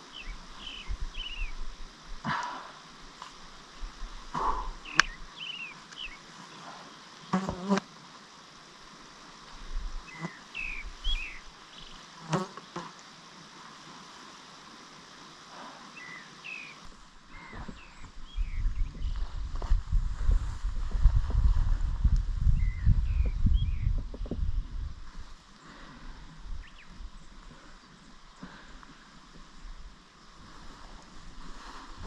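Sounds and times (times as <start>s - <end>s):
small bird chirping: 10.1s - 12.0s
wind buffeting microphone: 17.3s - 25.4s.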